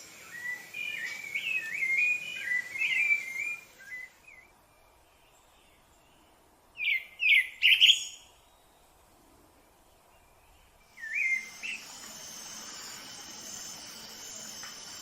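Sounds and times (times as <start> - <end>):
thrush singing whistled notes: 0.0 - 5.0, 10.3 - 15.0.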